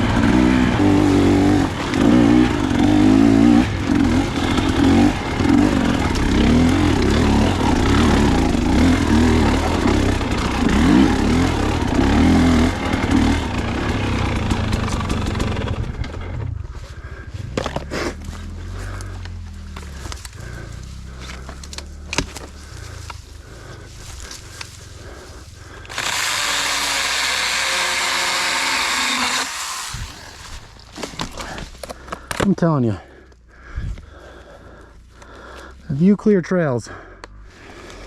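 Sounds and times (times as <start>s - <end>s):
dirt bike engine revving: 0.0s - 16.7s, 17.5s - 30.8s.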